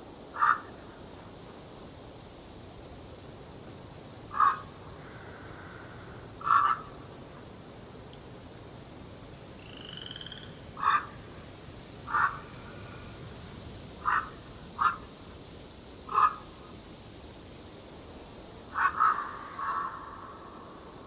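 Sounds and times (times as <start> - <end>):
forest background hiss: 0.0 - 21.0
bird calling: 0.4 - 0.8, 4.3 - 7.0, 9.6 - 11.2, 12.1 - 12.6, 14.0 - 15.1, 16.1 - 16.5, 18.7 - 20.7.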